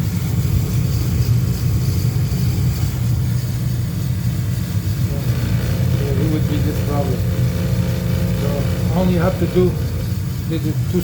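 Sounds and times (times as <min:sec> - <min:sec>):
furnace motor humming: 0:02.5 - 0:11.0.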